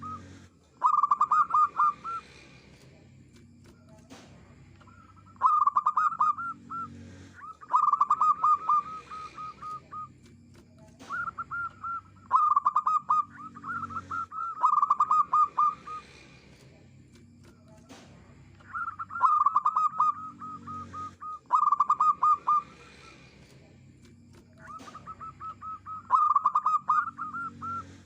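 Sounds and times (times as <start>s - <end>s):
dove cooing: 0.0s - 2.4s, 4.8s - 16.4s, 18.6s - 23.4s, 24.4s - 28.0s.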